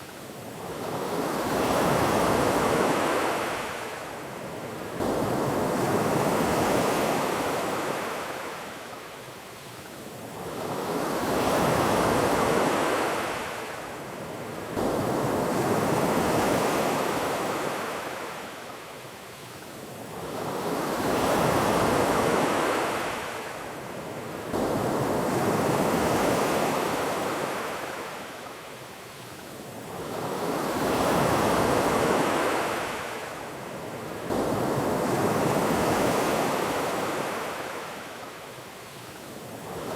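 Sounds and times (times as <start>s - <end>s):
ocean waves on a beach: 0.0s - 39.9s.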